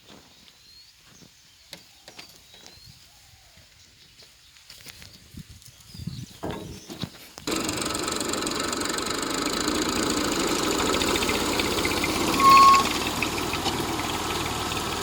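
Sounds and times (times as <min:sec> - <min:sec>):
tractor engine idling: 0:07.4 - 0:15.0
brief high beep: 0:12.4 - 0:12.9.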